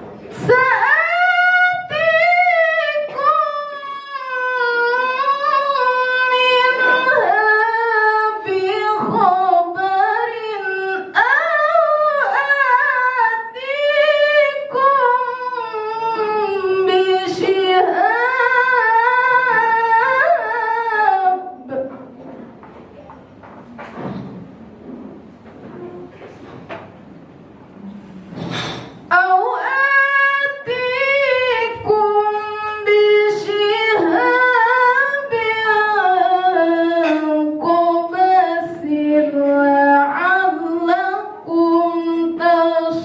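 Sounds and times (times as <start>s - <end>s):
woman reciting melodically: 0.2s - 23.8s, 29.1s - 43.0s.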